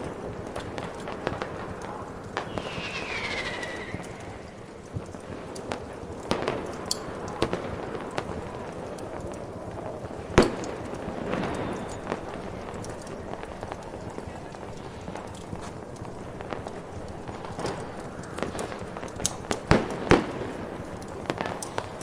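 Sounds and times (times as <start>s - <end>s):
fireworks popping and crackling: 0.0s - 22.0s
falling firework whistle: 2.4s - 4.9s.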